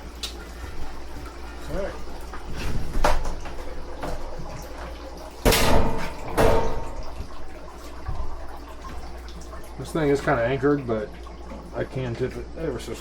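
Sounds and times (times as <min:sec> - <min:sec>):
metal kitchen equipment clanking: 0:05.4 - 0:07.2.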